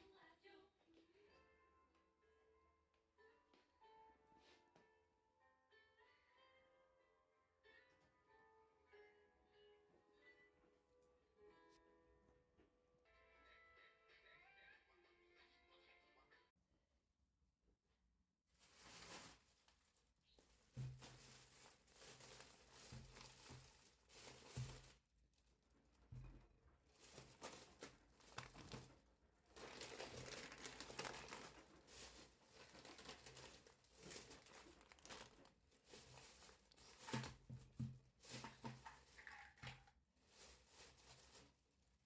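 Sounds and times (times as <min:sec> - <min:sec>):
packaging crinkling and rustling: 0:18.6 - 0:42.0.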